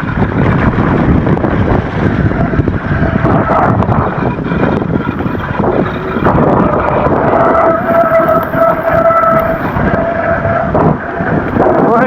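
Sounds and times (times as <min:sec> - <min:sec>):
bike tyres on wet trail: 0:00.0 - 0:12.0
high whine from bike motor: 0:00.0 - 0:12.0
wind noise: 0:00.0 - 0:12.0.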